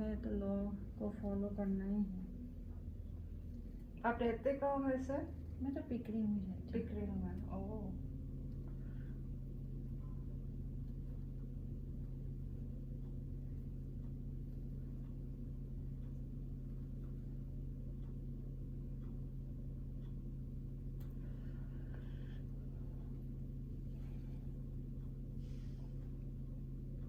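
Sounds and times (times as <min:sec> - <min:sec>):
low mechanical hum: 0:00.0 - 0:27.0
faint ticks: 0:09.8 - 0:27.0.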